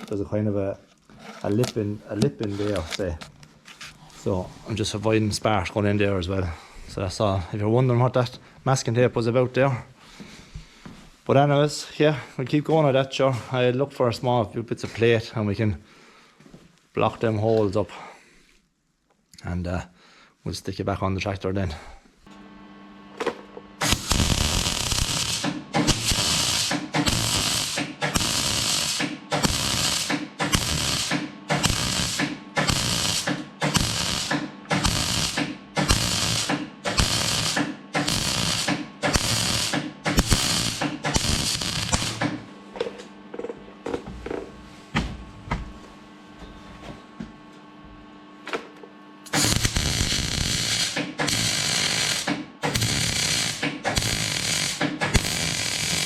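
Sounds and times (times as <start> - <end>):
welder electrical hum: 0.0 - 10.0, 20.6 - 56.0
welding arc crackling: 23.8 - 42.4, 49.3 - 56.0.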